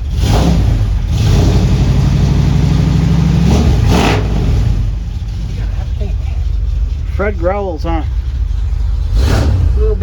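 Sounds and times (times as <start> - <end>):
engine growling at raised revs: 0.0 - 10.0.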